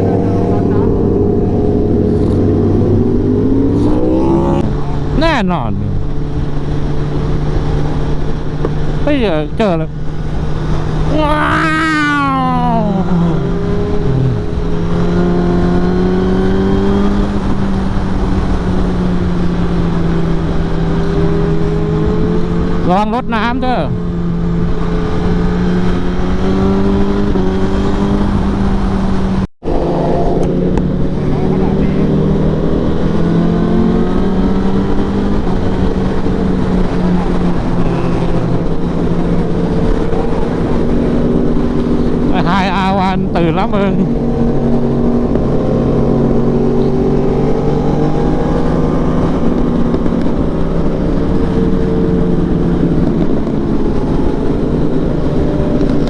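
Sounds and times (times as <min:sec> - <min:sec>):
wind noise on microphone: 0:00.0 - 0:05.2, 0:23.9 - 0:42.4, 0:43.1 - 0:56.0
motorcycle engine cruising: 0:00.0 - 0:56.0.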